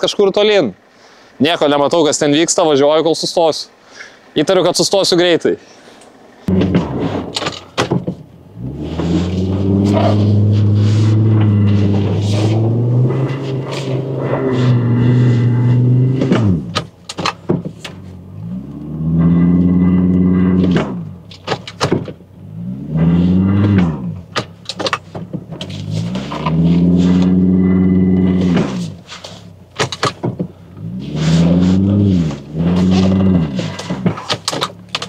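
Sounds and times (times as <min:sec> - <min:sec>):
suv engine revving: 0:05.8 - 0:35.0
sharp knocks and clatters: 0:06.5 - 0:08.3, 0:16.1 - 0:18.0, 0:20.6 - 0:22.2.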